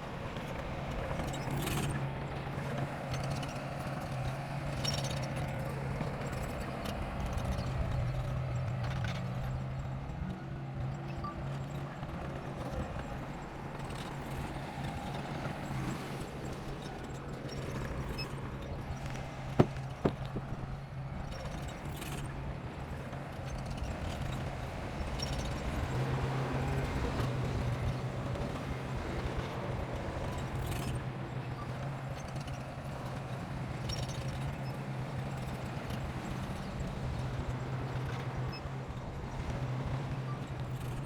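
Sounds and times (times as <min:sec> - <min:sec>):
bulldozer diesel engine running: 0:11.5 - 0:21.1
sharp knocks: 0:19.6 - 0:20.6.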